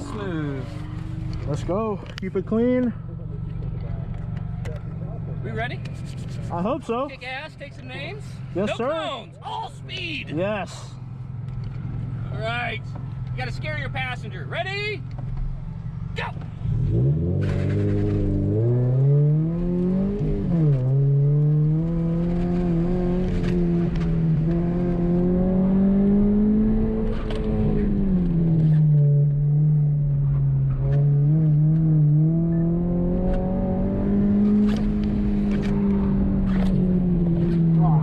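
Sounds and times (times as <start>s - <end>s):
car engine revving: 10.4s - 38.0s.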